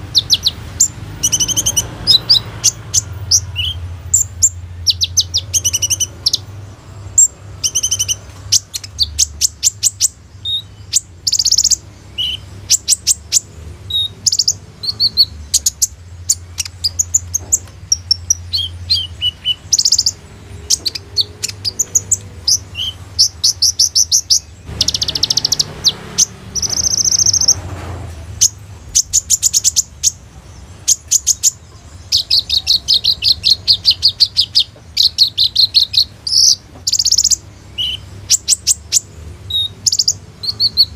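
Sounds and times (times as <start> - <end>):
sunbird chirping and trilling: 0.0 - 40.9.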